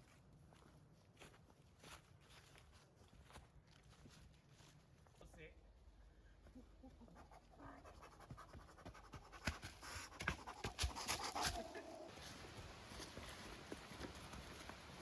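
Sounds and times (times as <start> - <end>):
footsteps crunching on trail: 0.0 - 5.3, 9.4 - 15.0.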